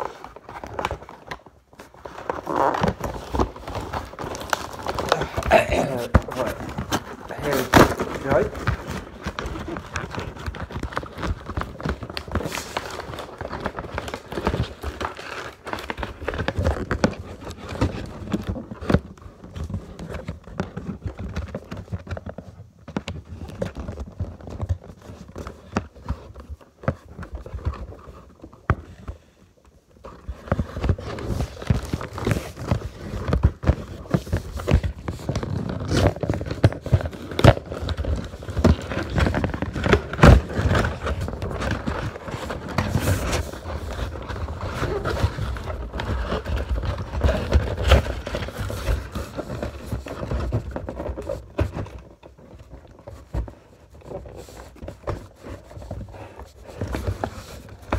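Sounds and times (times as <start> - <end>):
plastic packaging crinkling: 0.0 - 28.7, 29.9 - 57.9
cardboard box being handled: 30.0 - 57.9.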